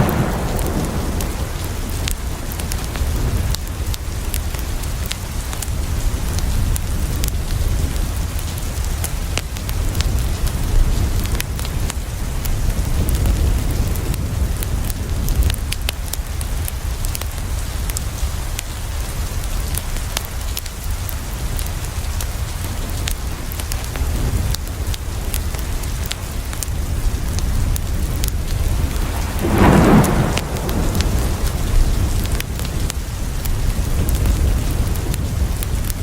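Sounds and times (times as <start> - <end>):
steady rain falling: 0.0 - 36.0
wood fire crackling: 0.0 - 36.0
low rumble: 27.4 - 35.4.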